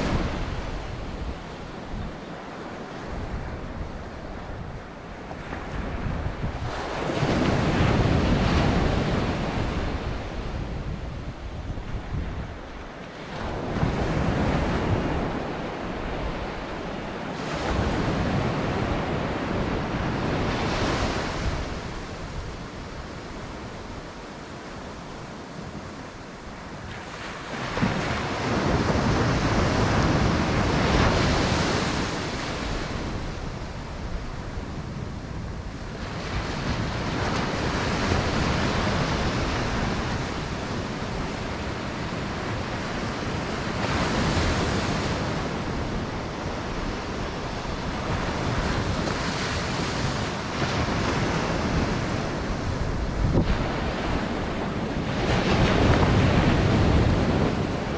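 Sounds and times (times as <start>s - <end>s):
waves breaking: 0.0s - 57.9s
wind on microphone: 0.0s - 57.9s.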